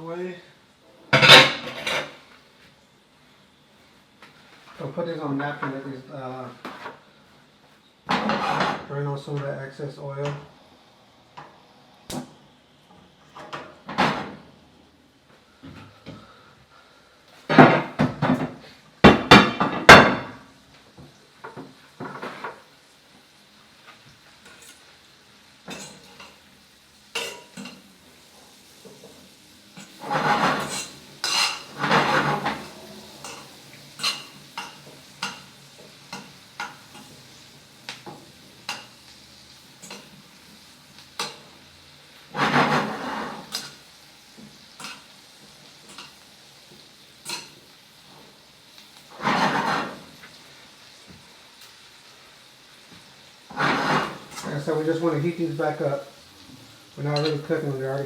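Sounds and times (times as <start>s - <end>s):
oil sizzling in a frying pan: 0.0s - 58.0s
pots and pans clattering: 1.1s - 2.3s, 8.1s - 8.9s, 13.3s - 14.4s, 17.5s - 20.4s, 21.4s - 22.6s, 25.6s - 26.4s, 27.1s - 27.8s, 29.8s - 37.3s, 39.8s - 40.2s, 41.2s - 41.6s, 42.3s - 43.8s, 45.8s - 46.2s, 49.1s - 50.4s, 53.5s - 54.8s.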